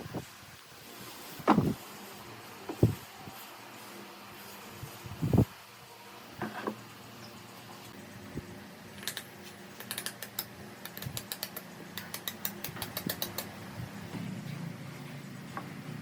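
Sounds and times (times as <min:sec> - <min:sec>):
faint steady hum: 0:00.0 - 0:16.0
small mechanism clicking: 0:09.0 - 0:13.6.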